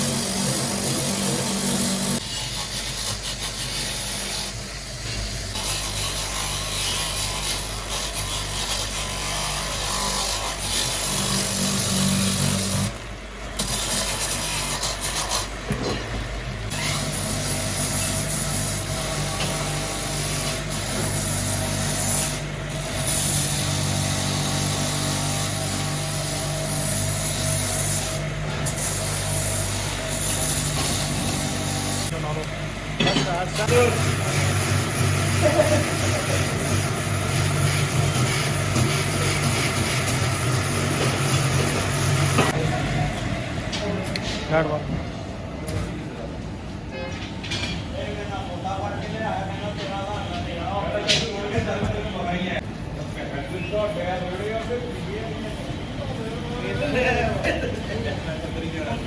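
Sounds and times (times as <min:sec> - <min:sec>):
power tool running: 0:00.0 - 0:15.8, 0:16.7 - 0:42.7.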